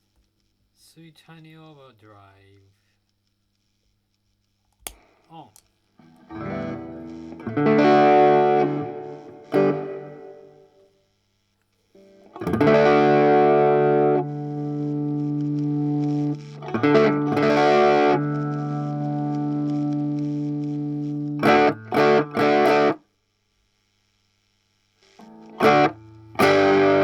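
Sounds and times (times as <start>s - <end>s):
overdriven electric guitar chords: 6.0s - 10.8s, 12.0s - 23.0s, 25.2s - 27.0s.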